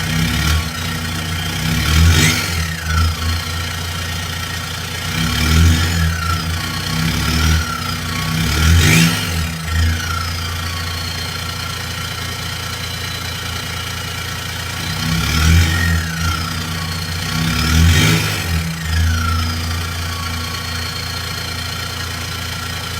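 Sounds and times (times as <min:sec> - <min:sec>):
diesel engine idling and revving: 0:00.0 - 0:22.9
turbo whistle: 0:09.9 - 0:12.0, 0:18.8 - 0:22.2.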